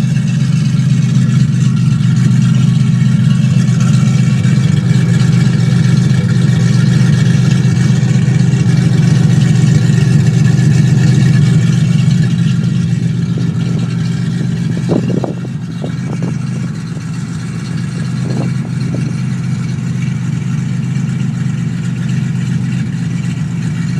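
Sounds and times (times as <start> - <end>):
car engine idling: 0.0 - 23.9.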